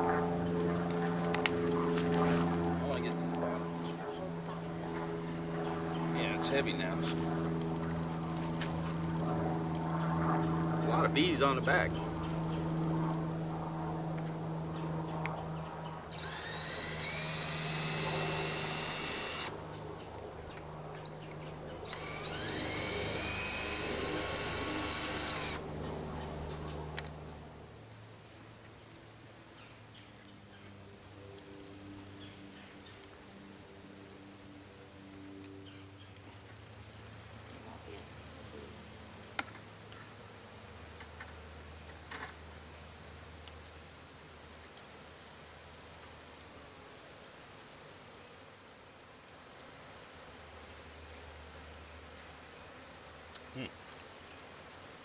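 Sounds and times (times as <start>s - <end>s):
honeybees buzzing: 10.4s - 26.5s
power drill whining: 16.2s - 19.6s, 21.8s - 25.7s.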